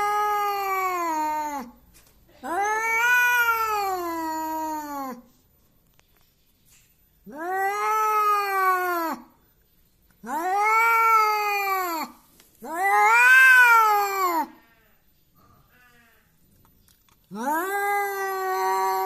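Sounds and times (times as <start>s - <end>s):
cat yowling angrily: 0.0s - 1.7s, 2.4s - 5.2s, 7.3s - 9.3s, 10.2s - 14.6s, 17.3s - 19.0s.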